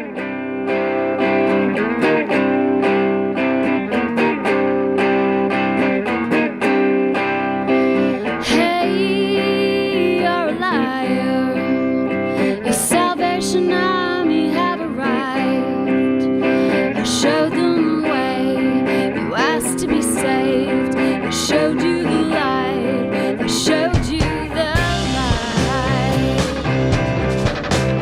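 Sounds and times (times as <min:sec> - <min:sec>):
rock band playing live: 0:00.0 - 0:09.7, 0:11.1 - 0:13.4, 0:15.4 - 0:21.7, 0:22.5 - 0:28.0
person singing: 0:07.7 - 0:27.6.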